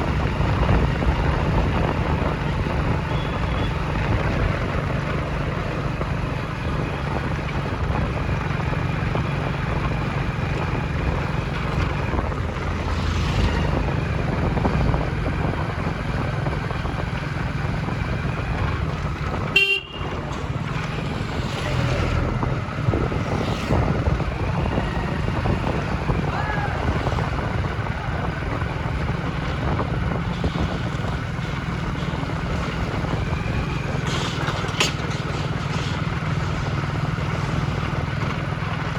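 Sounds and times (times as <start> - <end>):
vehicle engine and road noise: 0.0 - 38.9
car horns: 3.1 - 3.8, 19.3 - 20.5.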